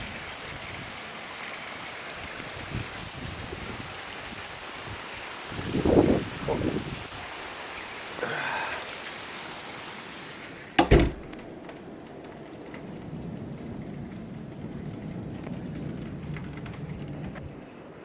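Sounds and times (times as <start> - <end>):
heavy rain hiss: 0.0 - 11.6
wind buffeting microphone: 2.3 - 7.3, 10.9 - 18.0
loud knocks: 10.8 - 11.5.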